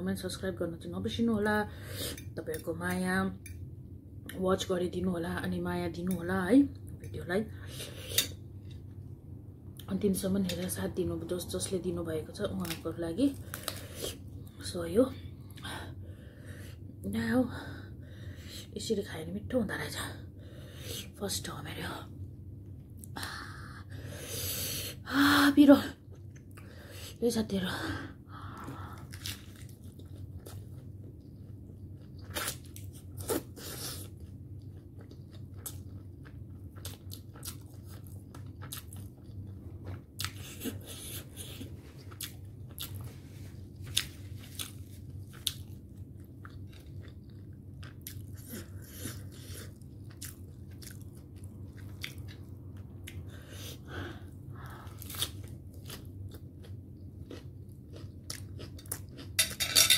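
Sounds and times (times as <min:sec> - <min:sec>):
steady low hum: 0:00.0 - 0:59.9
crunchy chewing of lettuce: 0:29.0 - 0:53.2, 0:54.8 - 0:59.4.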